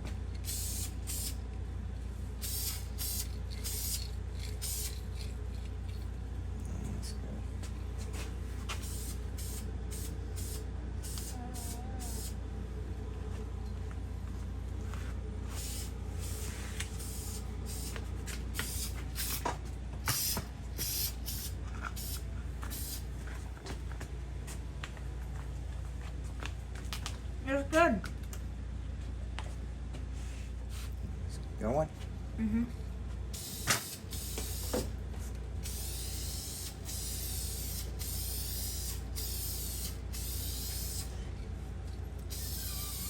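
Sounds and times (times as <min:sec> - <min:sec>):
steady low hum: 0:00.0 - 0:43.0
spray paint hissing: 0:00.4 - 0:01.4, 0:02.4 - 0:05.3, 0:08.7 - 0:12.4, 0:15.5 - 0:23.1, 0:33.3 - 0:34.9, 0:35.6 - 0:41.2, 0:42.3 - 0:43.0.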